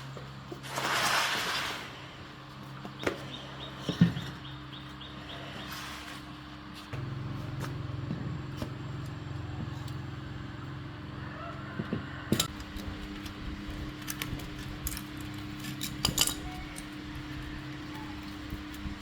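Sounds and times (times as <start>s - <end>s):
steady low hum: 0.0s - 19.0s
metal tools clinking: 13.9s - 18.3s.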